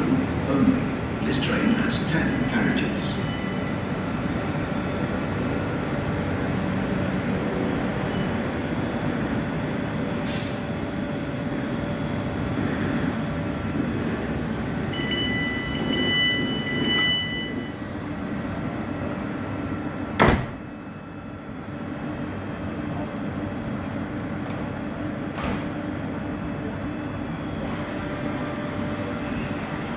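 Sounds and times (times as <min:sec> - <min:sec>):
train equipment humming: 0:00.0 - 0:29.9
door warning beeps: 0:15.0 - 0:17.8
train doors banging shut: 0:20.1 - 0:20.7, 0:25.3 - 0:25.8.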